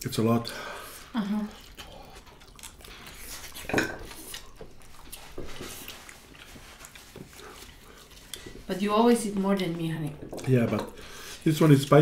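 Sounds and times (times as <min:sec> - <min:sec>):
dishes and cutlery clinking: 0:03.5 - 0:04.5, 0:09.8 - 0:11.1.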